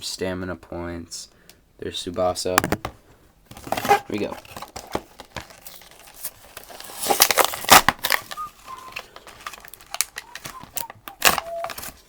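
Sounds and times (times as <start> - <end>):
packaging crackling and crumpling: 3.5 - 12.0.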